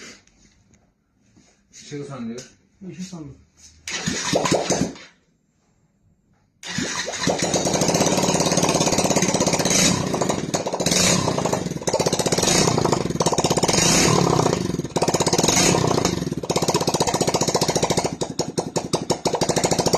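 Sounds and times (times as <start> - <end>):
motorcycle engine revving: 6.7 - 19.9.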